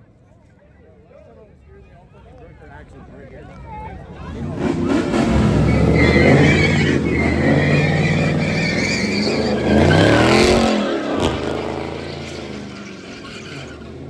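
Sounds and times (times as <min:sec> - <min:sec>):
tires squealing: 0:04.1 - 0:14.0
car engine revving high: 0:04.2 - 0:14.0.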